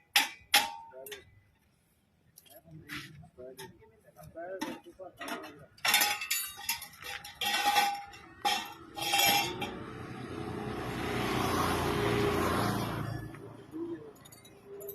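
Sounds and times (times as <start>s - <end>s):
metal clanks and clinks: 0.0s - 1.4s, 4.5s - 11.6s, 12.8s - 14.9s
passing vehicle: 8.2s - 14.9s.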